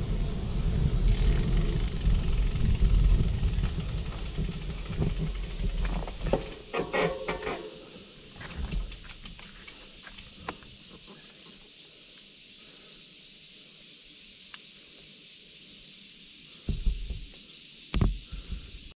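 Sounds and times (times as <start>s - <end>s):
high-pitched hiss: 0.0s - 18.9s
faint ticks: 8.4s - 12.3s, 14.4s - 14.8s
thump: 16.7s - 18.7s.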